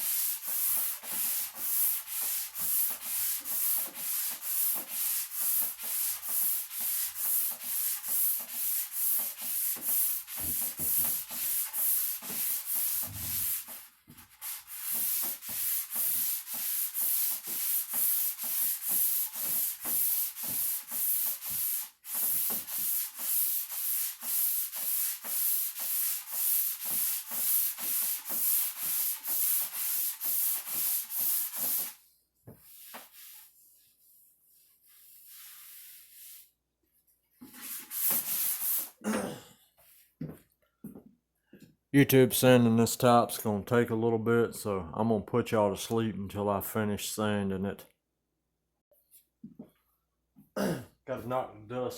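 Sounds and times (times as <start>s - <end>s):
sandpaper rubbing on wood: 0.0s - 36.5s, 37.4s - 39.0s.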